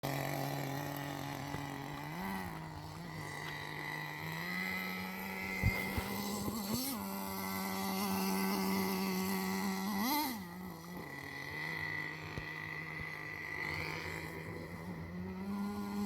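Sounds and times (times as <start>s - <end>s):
model engine idling with throttle blips: 0.0s - 16.0s.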